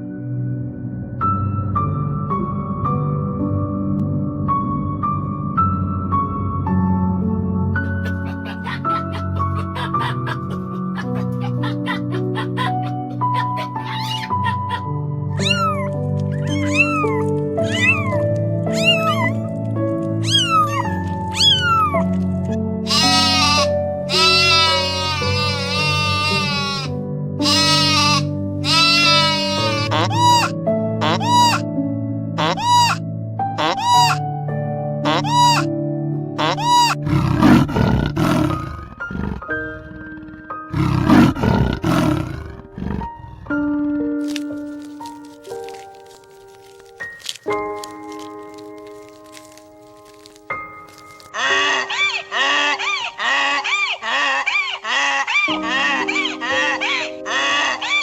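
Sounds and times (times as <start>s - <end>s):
background music with held notes: 0.0s - 58.0s
cat meowing: 11.0s - 19.4s, 20.2s - 22.1s, 22.9s - 31.6s
animal roaring call: 36.4s - 43.5s.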